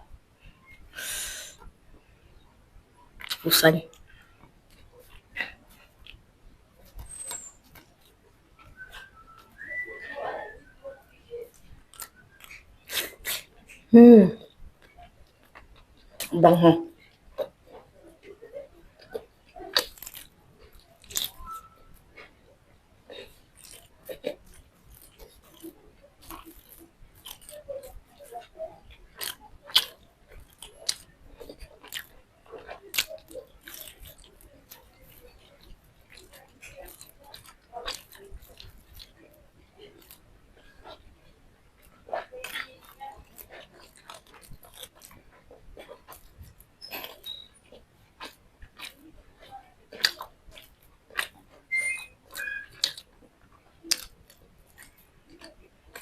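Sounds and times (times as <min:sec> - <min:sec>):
chewing and biting: 0:03.2 - 0:06.2, 0:06.8 - 0:10.2, 0:11.3 - 0:16.3, 0:16.9 - 0:56.0
wet mouth smacks and clicks: 0:50.0 - 0:53.1
high squeaky tones: 0:51.7 - 0:52.8.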